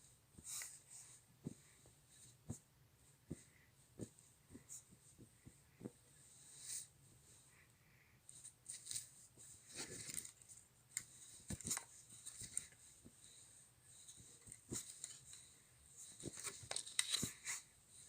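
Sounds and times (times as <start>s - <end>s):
faint rustling and clicking: 0.0s - 18.0s.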